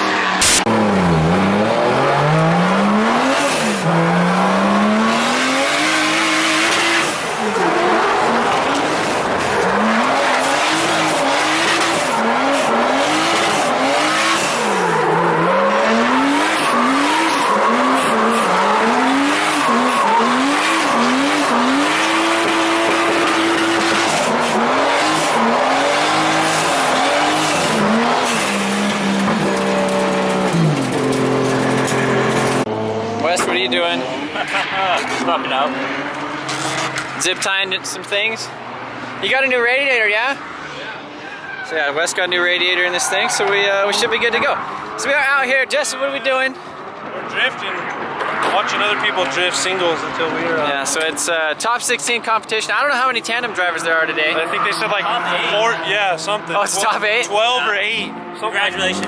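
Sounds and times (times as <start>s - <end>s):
tyre squeal: 0.0s - 32.7s, 40.4s - 45.1s
car engine revving: 0.0s - 59.0s.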